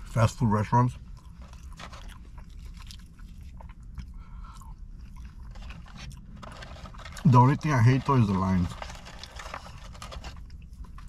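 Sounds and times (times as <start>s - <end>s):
steady low rumble: 0.0s - 11.0s
person chewing food: 1.0s - 7.2s, 8.9s - 11.0s.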